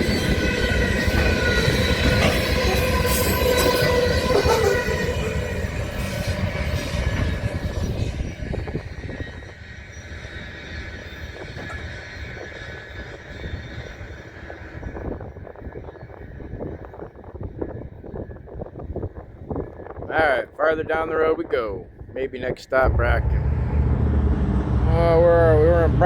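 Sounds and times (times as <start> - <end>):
wheel squeal: 0.0 - 15.2
freight train rumbling past: 0.0 - 15.3, 22.8 - 26.0.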